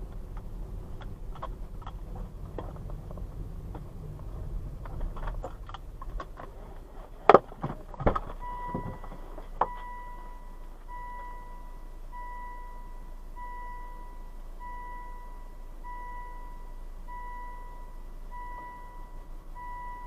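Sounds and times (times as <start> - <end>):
clicks and rattles in a car: 0.0 - 11.0
car electronic warning chime: 8.4 - 20.0.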